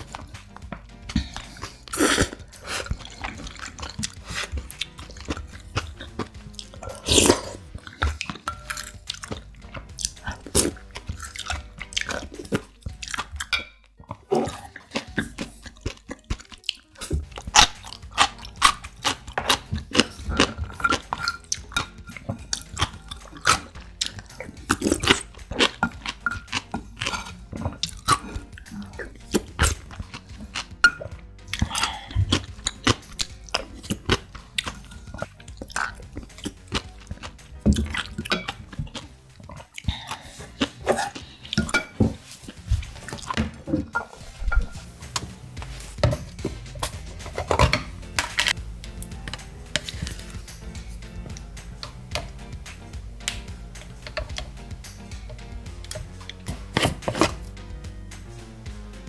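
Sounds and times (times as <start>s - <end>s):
slurping noodle soup: 1.0s - 13.5s, 14.1s - 52.4s
crunching pickled radish: 14.2s - 43.9s, 45.1s - 52.4s.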